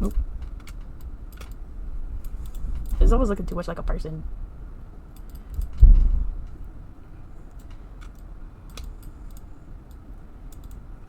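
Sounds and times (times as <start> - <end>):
keyboard and mouse clicks: 0.0 - 1.6, 5.1 - 5.8, 7.5 - 10.8
dull low thump: 5.7 - 6.5.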